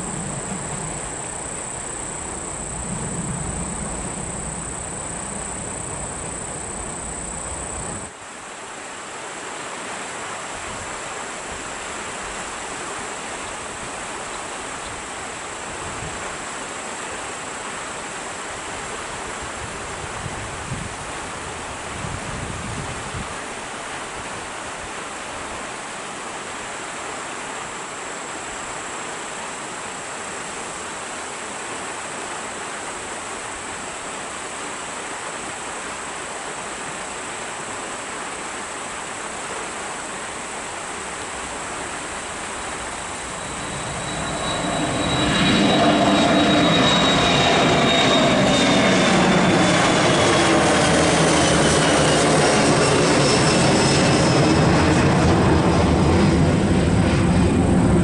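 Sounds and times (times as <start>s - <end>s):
airliner engine whine: 0.0s - 8.2s, 41.3s - 58.0s.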